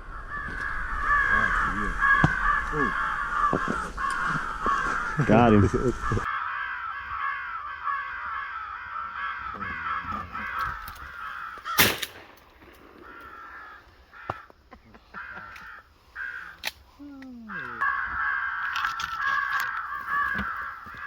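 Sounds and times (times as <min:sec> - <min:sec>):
crows cawing: 0:00.0 - 0:21.0
shotgun blast: 0:11.8 - 0:12.4.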